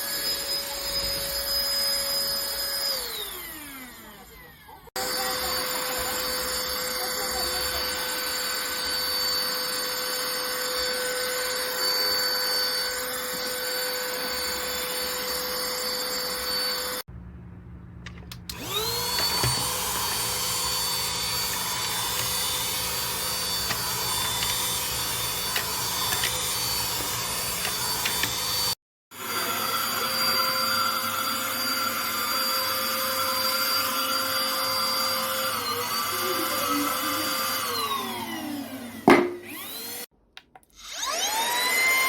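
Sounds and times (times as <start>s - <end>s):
vacuum cleaner motor whine: 0.0s - 17.1s, 18.3s - 40.1s, 40.8s - 42.0s.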